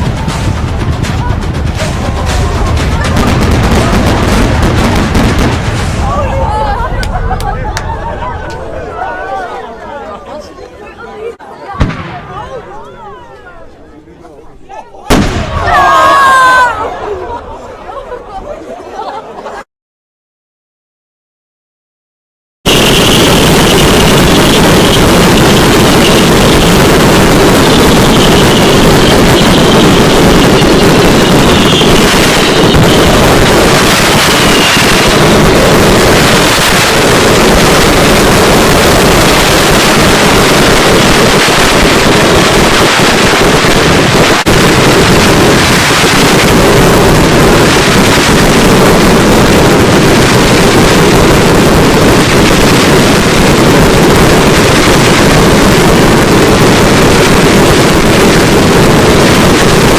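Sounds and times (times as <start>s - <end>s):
firecracker bangs: 0.0s - 8.1s, 11.8s - 12.7s, 15.1s - 16.3s, 22.7s - 59.9s
firework whistles: 22.7s - 26.8s, 27.5s - 35.6s.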